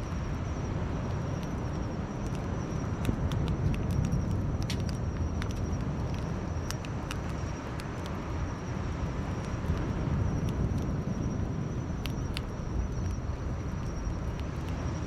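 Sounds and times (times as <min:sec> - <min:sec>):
campfire crackling and popping: 0:00.1 - 0:15.0.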